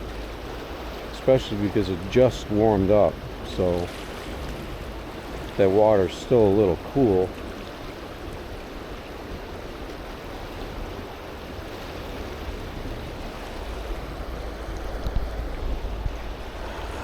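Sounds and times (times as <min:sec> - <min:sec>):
river rushing: 0:00.0 - 0:17.0
heavy low rumble: 0:12.9 - 0:17.0.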